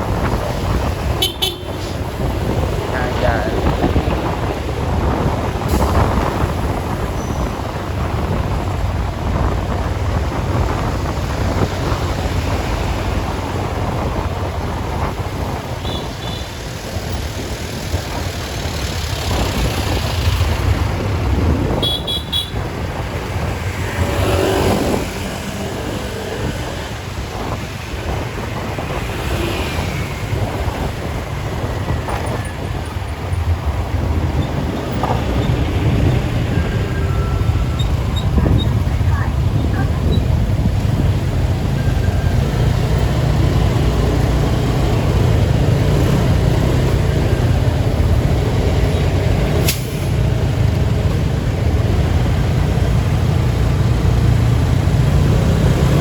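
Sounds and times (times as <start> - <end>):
rumble of passing vehicles: 0.0 - 56.0
car horn toots: 1.2 - 1.8, 21.8 - 22.6.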